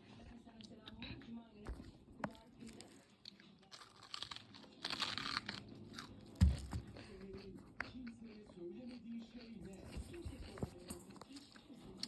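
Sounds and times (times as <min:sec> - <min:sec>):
crunching cabbage leaves: 0:02.6 - 0:07.2.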